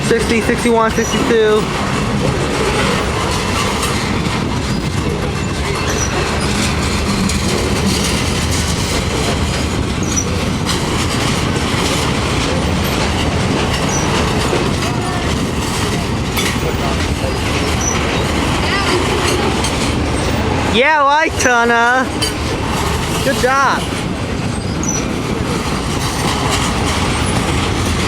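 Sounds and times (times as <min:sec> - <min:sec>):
freight train cars rumbling past: 0:00.0 - 0:28.0
wheels clattering over rail joints: 0:00.0 - 0:28.0
faint high wheel squeals: 0:24.4 - 0:25.1.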